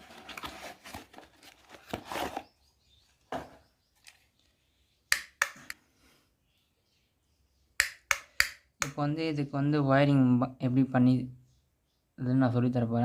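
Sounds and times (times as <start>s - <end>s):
rustling handling noise: 0.0s - 4.6s
sharp clicks: 7.8s - 9.0s.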